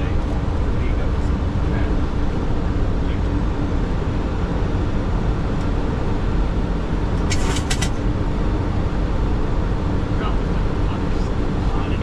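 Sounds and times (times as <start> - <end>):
aircraft engine noise: 0.0 - 12.0
cockpit airflow: 7.1 - 8.2.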